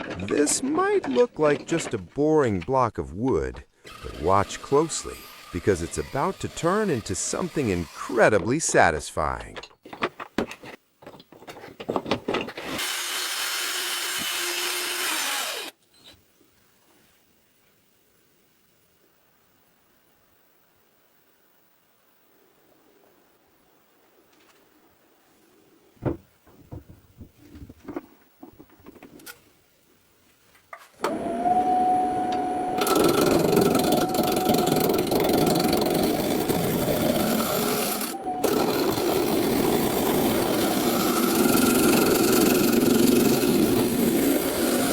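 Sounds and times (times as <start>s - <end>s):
power tool hissing on wood: 3.8s - 8.3s, 12.8s - 15.7s, 31.1s - 44.9s
harsh grinding of wood: 3.8s - 8.6s, 11.5s - 15.8s, 31.1s - 44.9s
wood knocking and clicking: 26.0s - 29.2s.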